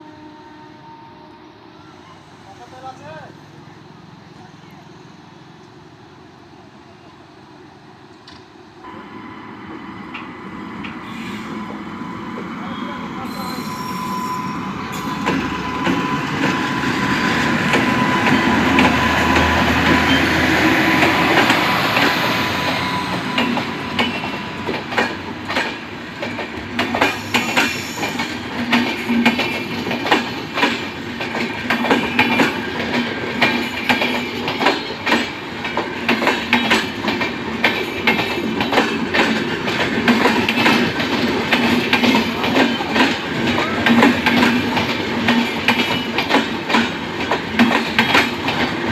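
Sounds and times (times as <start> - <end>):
train rumble: 2.6 - 48.9
train wheels clicking over rail joints: 14.9 - 48.9.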